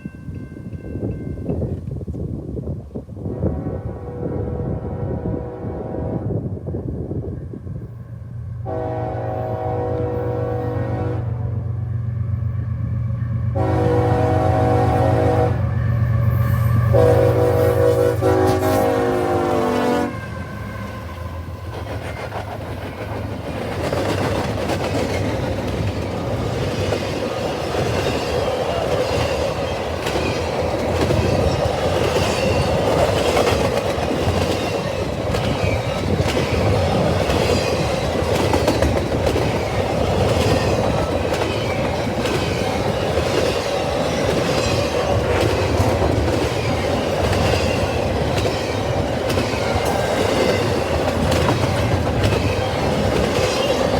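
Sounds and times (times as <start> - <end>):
train horn: 3.2 - 6.5, 8.6 - 21.9
train wheels clattering over rail joints: 21.6 - 53.9.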